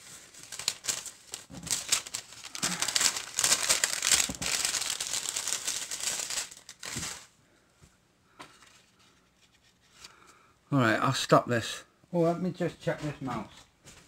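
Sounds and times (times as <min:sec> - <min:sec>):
crinkling and rustling: 0:00.0 - 0:07.3.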